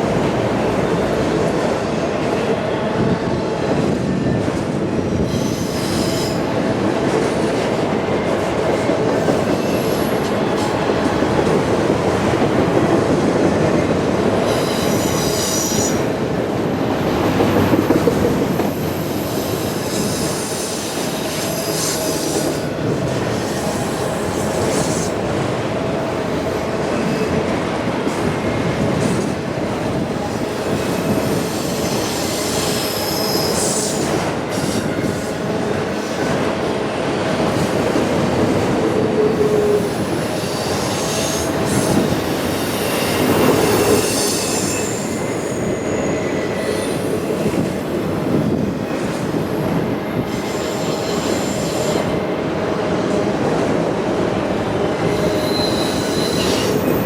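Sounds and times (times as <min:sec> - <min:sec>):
train wheels rumbling on rail: 0:00.0 - 0:57.0
high-pitched wheel squeals: 0:39.6 - 0:47.1, 0:55.1 - 0:57.0.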